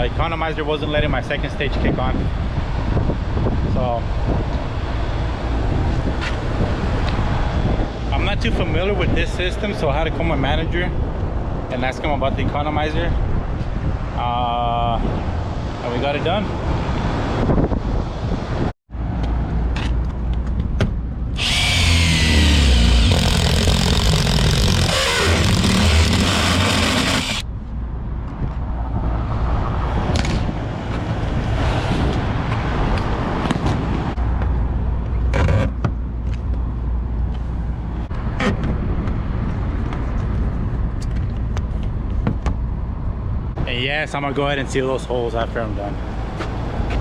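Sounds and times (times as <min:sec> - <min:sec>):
cordless drill running: 0:21.4 - 0:27.4.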